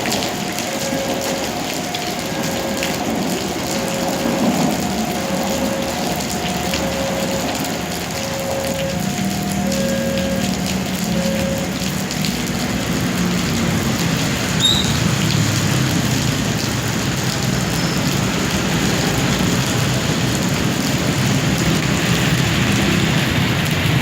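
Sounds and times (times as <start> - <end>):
high squeal: 14.6 - 15.1.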